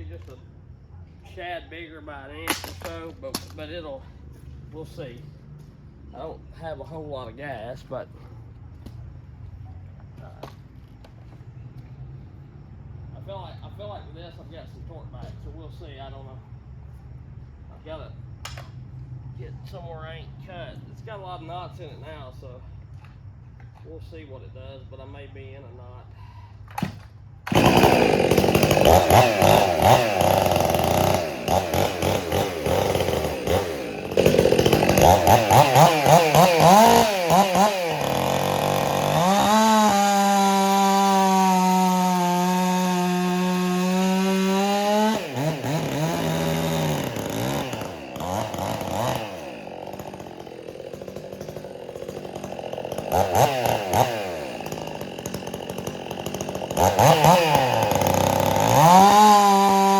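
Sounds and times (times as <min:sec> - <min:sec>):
chainsaw revving: 0:27.5 - 0:59.9.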